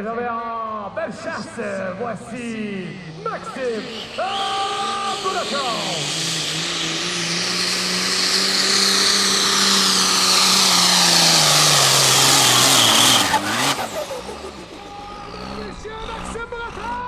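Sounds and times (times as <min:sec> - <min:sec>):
diesel engine at full throttle: 0:00.8 - 0:17.0
loud turbo hiss: 0:02.4 - 0:15.4.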